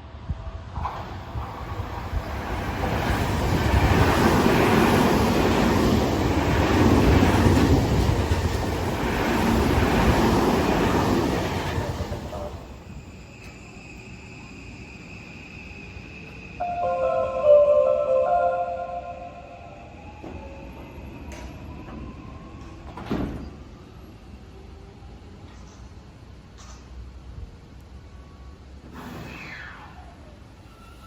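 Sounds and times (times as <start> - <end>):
train wheels rumbling on rails: 0.0 - 16.6, 20.0 - 27.8.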